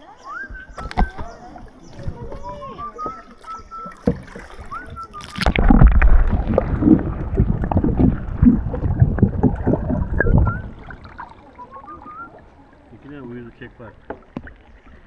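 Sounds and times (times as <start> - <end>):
water splashing around kayak: 0.0 - 15.0
heavy low rumble: 5.6 - 11.6.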